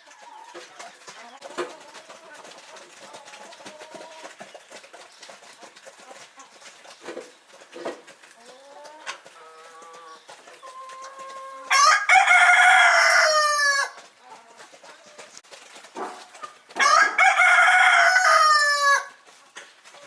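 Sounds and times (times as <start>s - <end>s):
chicken calls: 0.0s - 20.0s
rooster crowing: 11.7s - 14.0s, 16.8s - 19.2s.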